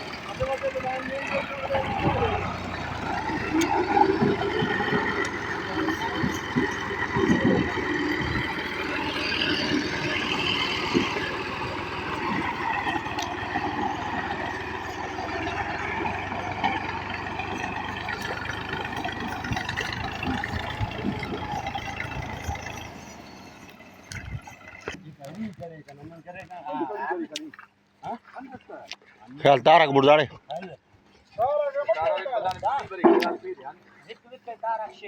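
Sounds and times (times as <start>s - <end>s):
tractor engine running: 0.0s - 26.5s
background voices: 0.0s - 26.7s.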